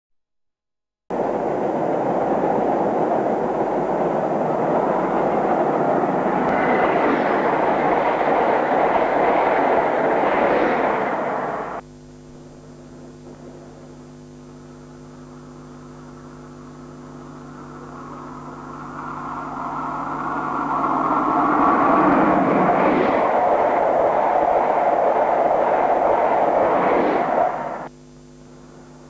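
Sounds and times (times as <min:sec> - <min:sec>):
train passing at speed: 0:01.1 - 0:11.8, 0:16.1 - 0:27.9
steady electrical hum: 0:01.1 - 0:29.0.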